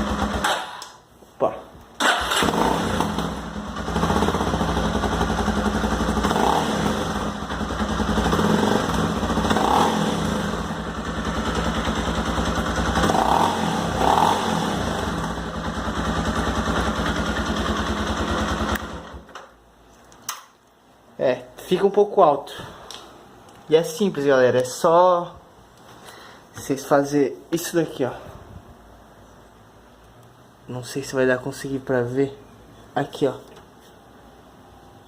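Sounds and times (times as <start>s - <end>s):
motorcycle engine revving: 0.0s - 0.8s, 2.0s - 19.2s.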